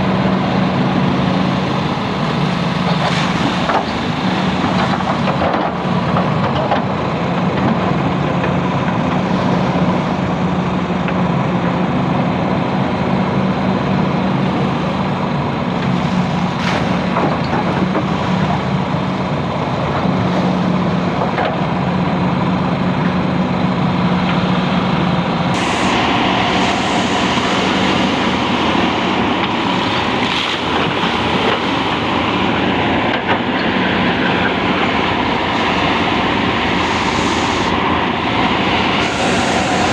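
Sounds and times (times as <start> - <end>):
excavator diesel engines running: 0.0 - 39.9
bright hiss: 25.6 - 32.1.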